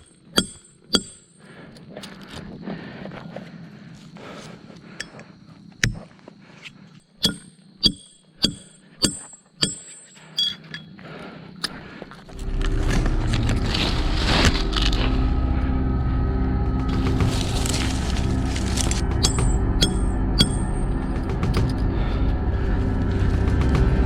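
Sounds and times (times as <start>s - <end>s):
sharp metallic clinking strikes: 7.2s - 11.0s, 16.9s - 21.9s
background music: 12.4s - 24.0s.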